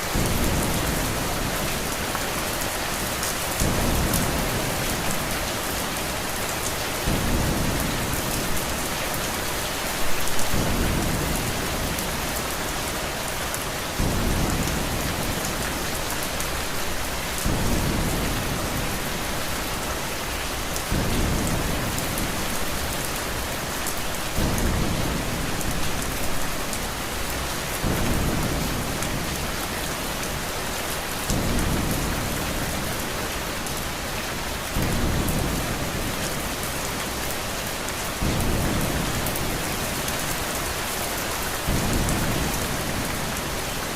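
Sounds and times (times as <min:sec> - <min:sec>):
steady rain: 0:00.0 - 0:43.9
low rumble of thunder: 0:06.9 - 0:09.0, 0:14.0 - 0:16.1, 0:17.3 - 0:19.4, 0:20.8 - 0:23.4, 0:41.6 - 0:43.6.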